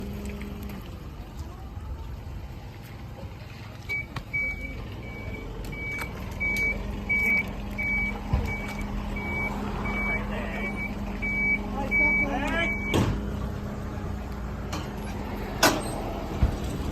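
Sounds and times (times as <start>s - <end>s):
low engine running: 0.0s - 16.9s
high electronic beeps: 3.9s - 13.0s.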